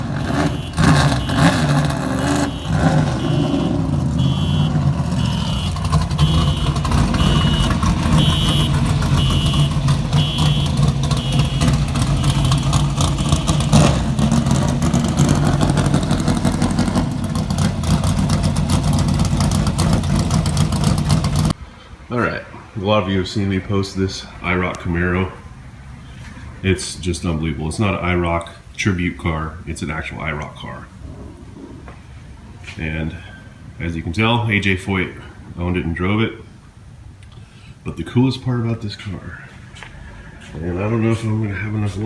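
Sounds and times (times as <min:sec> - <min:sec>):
vehicle engine running: 0:00.0 - 0:21.6
high electronic beeps: 0:02.3 - 0:11.6.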